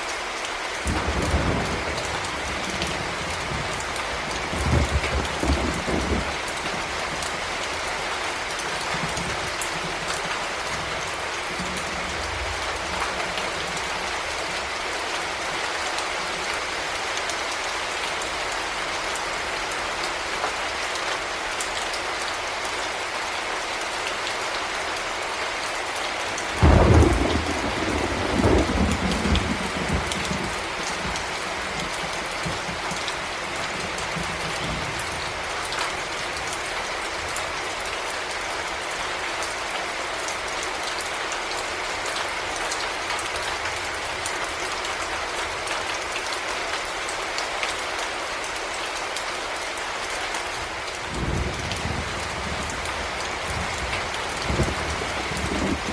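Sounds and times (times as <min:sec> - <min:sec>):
heavy rain falling: 0:00.0 - 0:55.9
thunder rumbling: 0:00.8 - 0:07.4, 0:26.6 - 0:32.9, 0:51.1 - 0:55.9.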